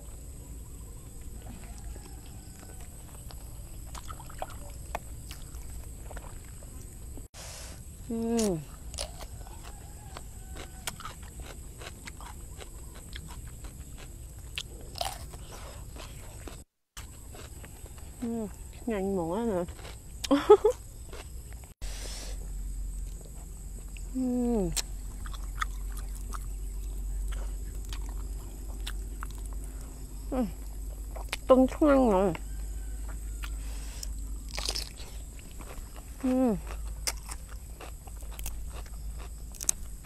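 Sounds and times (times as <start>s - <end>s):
crunchy chewing of cucumber: 0.0s - 18.9s, 19.5s - 40.0s.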